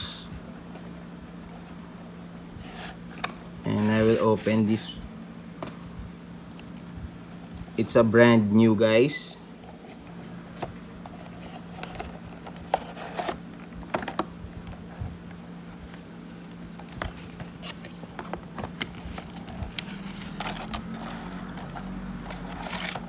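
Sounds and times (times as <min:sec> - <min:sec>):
low steady hum: 0:00.0 - 0:23.0
packaging being handled and opened: 0:09.7 - 0:23.0.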